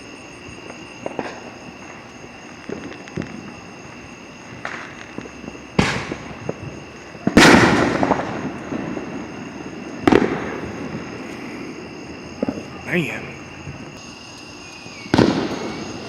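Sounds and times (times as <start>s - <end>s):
fireworks popping and banging: 0.6s - 2.0s, 2.6s - 11.5s, 12.4s - 14.1s, 15.0s - 16.0s
loud firework boom echoing: 5.5s - 11.3s, 15.0s - 16.0s.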